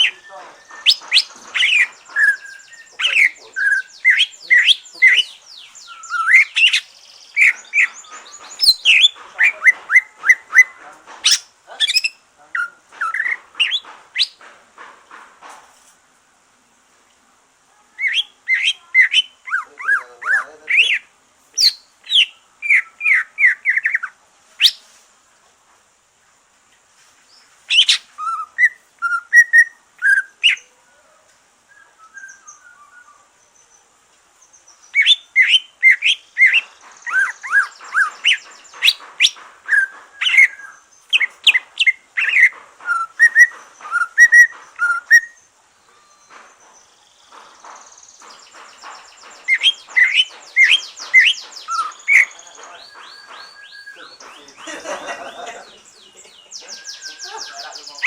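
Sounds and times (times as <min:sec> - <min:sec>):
bird singing chirps and whistles: 0:00.0 - 0:14.4, 0:18.0 - 0:24.8, 0:27.7 - 0:30.7, 0:31.7 - 0:33.3, 0:34.9 - 0:46.3, 0:46.9 - 0:58.0.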